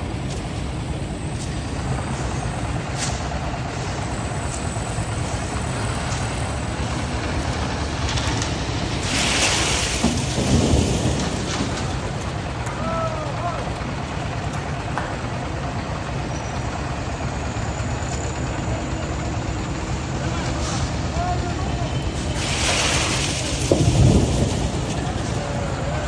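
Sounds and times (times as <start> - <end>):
diesel machinery rumbling: 0.0 - 26.0
loud hiss: 8.9 - 11.0.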